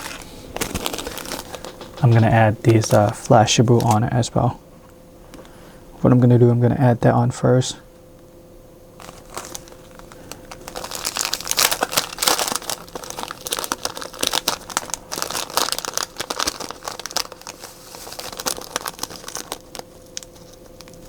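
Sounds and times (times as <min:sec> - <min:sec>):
plastic tinsel crinkling: 0:00.0 - 0:03.1, 0:09.0 - 0:21.0
faint steady hum: 0:00.0 - 0:21.0.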